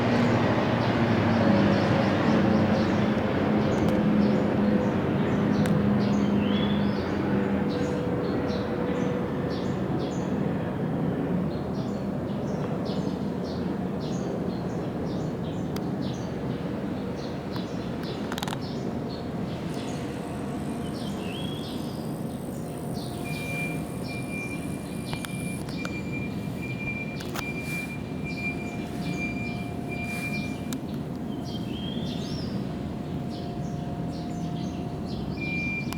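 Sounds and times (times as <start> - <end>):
jet engines rumbling: 16.6 - 35.9
small birds chirping: 17.2 - 35.9
thin steady whine: 17.9 - 35.9.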